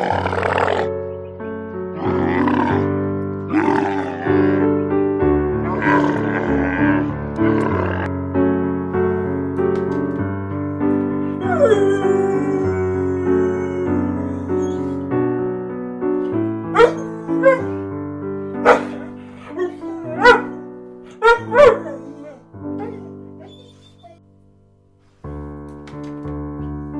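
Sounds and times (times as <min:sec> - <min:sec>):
piano music: 0:00.0 - 0:26.9
dog barking and yipping: 0:16.7 - 0:17.8, 0:18.6 - 0:24.2.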